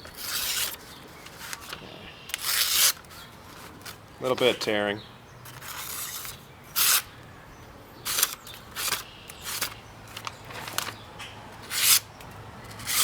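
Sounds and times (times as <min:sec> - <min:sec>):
knife slicing paper: 0:00.1 - 0:00.8, 0:01.4 - 0:03.0, 0:05.6 - 0:07.1.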